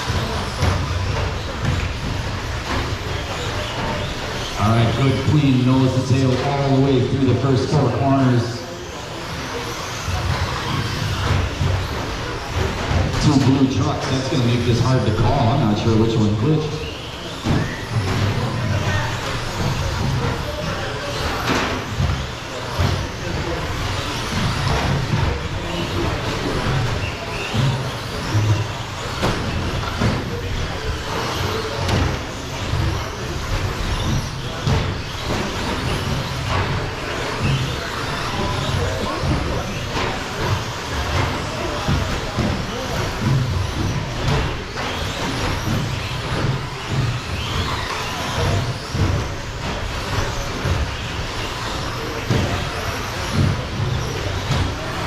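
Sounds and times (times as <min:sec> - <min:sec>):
radio-controlled trucks racing: 0:00.0 - 0:55.0.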